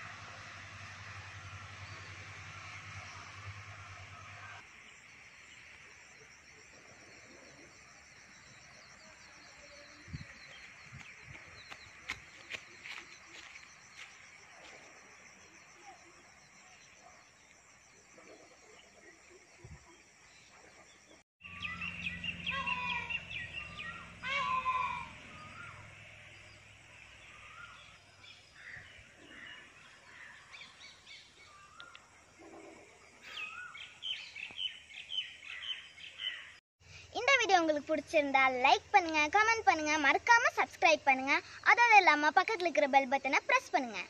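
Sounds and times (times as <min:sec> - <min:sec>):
birds chirping and calling: 0:20.4 - 0:25.9, 0:33.2 - 0:36.6.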